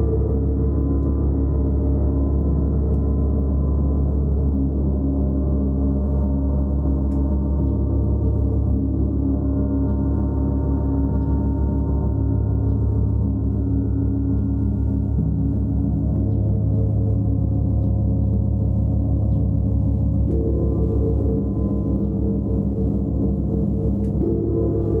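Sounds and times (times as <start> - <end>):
large gong sounding: 20.2 - 25.0.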